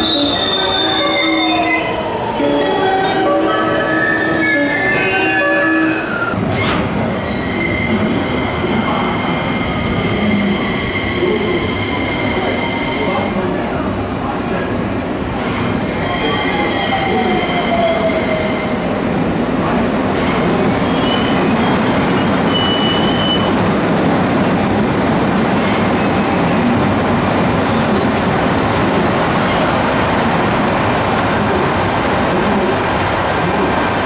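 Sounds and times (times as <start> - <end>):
train wheels rumbling on rail: 6.3 - 34.0
high wheel squeals: 20.3 - 23.5.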